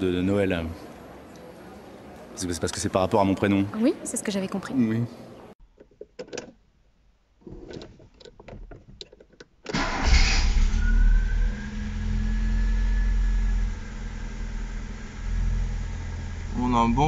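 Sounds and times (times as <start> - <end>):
car engine starting and idling: 9.7 - 17.0.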